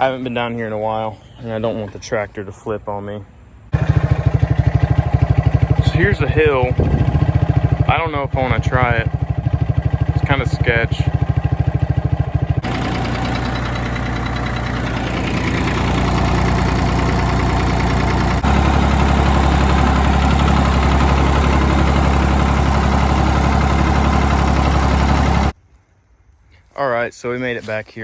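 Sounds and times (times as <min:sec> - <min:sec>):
tractor diesel engine clattering: 0:03.7 - 0:25.6.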